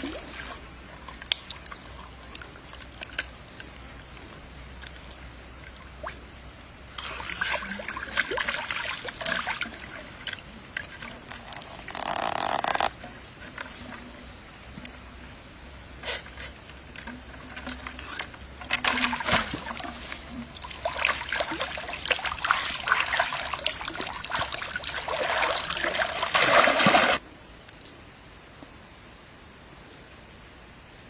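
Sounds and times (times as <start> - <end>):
water splashing and trickling: 0.0 - 27.2.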